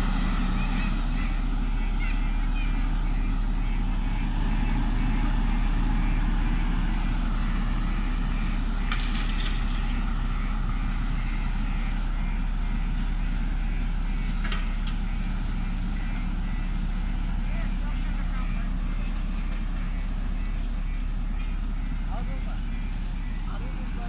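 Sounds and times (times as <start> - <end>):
backhoe diesel engine running: 0.0 - 24.0.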